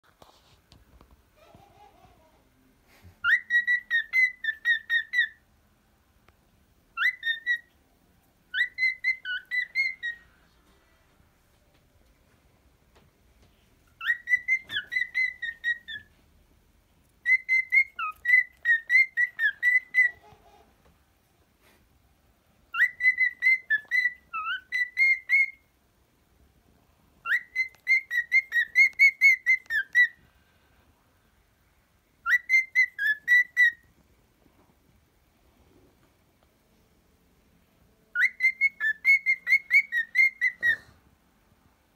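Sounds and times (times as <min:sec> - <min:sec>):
cockatiel whistling: 0:03.2 - 0:05.4, 0:07.0 - 0:07.7, 0:08.5 - 0:10.3, 0:13.9 - 0:16.1, 0:17.2 - 0:20.4, 0:22.7 - 0:25.7, 0:27.2 - 0:30.2, 0:32.2 - 0:33.9, 0:38.1 - 0:41.0.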